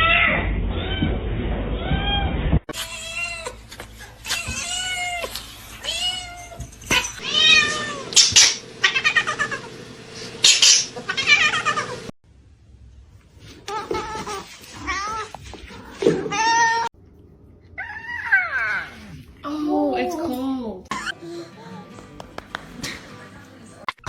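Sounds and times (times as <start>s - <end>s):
cat meowing: 4.2s - 8.2s.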